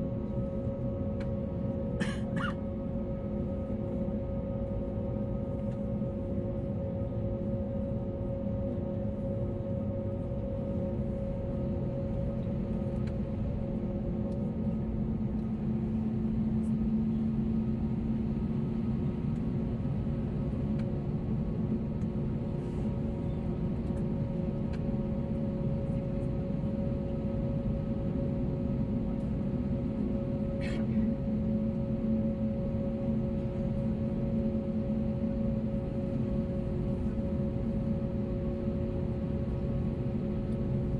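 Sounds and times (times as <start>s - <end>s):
jet engine and airflow rumble: 0.0s - 40.9s.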